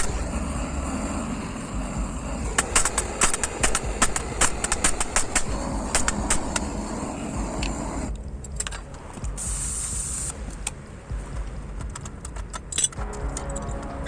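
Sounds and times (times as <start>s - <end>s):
hammer striking metal grate: 2.5s - 6.8s.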